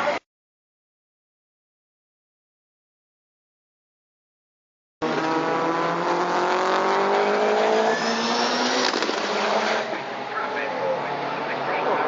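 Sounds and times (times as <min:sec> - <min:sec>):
race truck engines running hard: 0:05.0 - 0:12.0.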